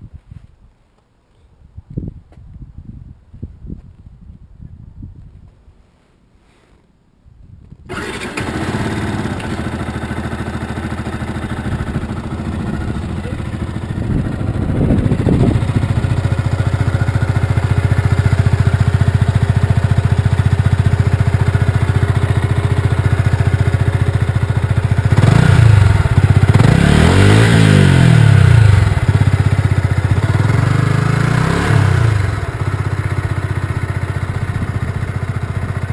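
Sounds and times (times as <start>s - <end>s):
motorcycle engine idling and revving: 7.9s - 35.9s.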